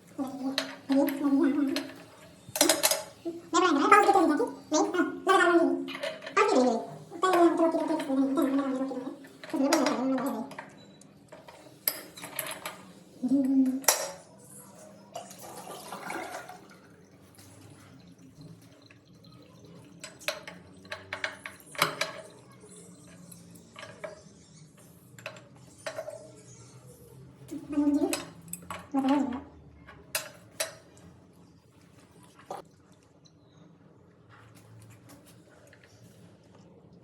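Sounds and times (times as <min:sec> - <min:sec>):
metal parts clinking and knocking: 0:00.5 - 0:03.2, 0:11.4 - 0:12.9
running water: 0:14.6 - 0:26.4.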